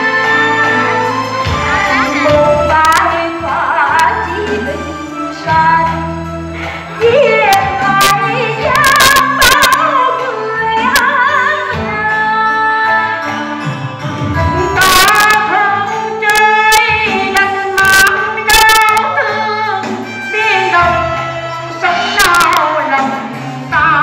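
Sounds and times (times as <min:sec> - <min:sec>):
woman singing with vibrato: 0:00.0 - 0:13.6, 0:14.4 - 0:24.0
instrumental accompaniment: 0:00.0 - 0:24.0
sharp percussion strikes: 0:07.4 - 0:12.0, 0:12.8 - 0:19.1.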